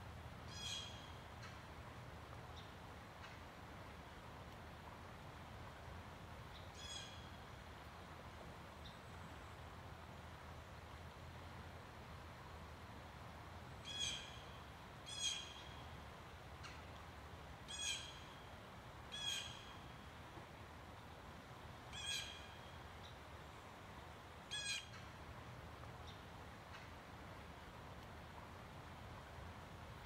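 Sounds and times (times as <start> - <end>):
bird calling: 0.5 - 1.6, 6.6 - 7.4, 17.7 - 18.4, 19.1 - 19.8, 21.9 - 22.6, 24.5 - 25.1.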